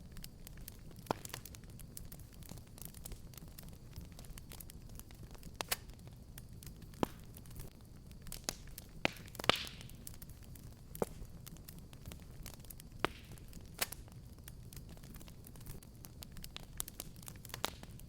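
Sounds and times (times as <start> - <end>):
fire hissing: 0.0 - 18.0
fireplace fire crackling: 0.0 - 18.0.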